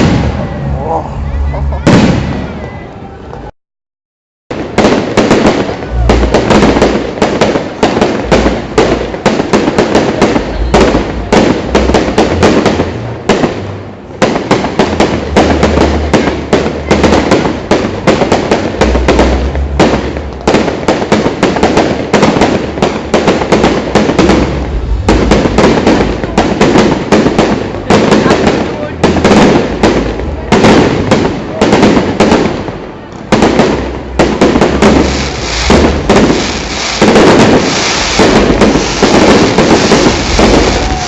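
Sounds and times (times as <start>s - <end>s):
fireworks bangs and crackling: 0.0s - 3.5s, 4.5s - 41.0s
low rumble: 22.6s - 28.0s.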